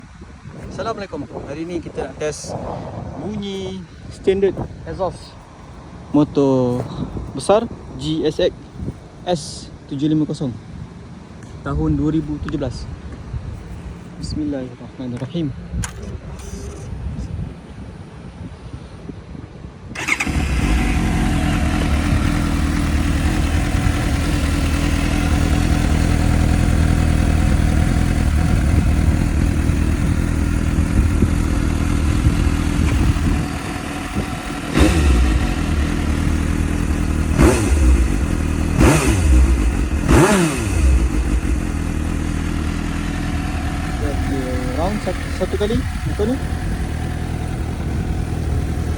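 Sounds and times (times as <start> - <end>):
engine throttle blips: 20.0 - 48.9
motorcycle engine starting and idling: 20.0 - 48.9.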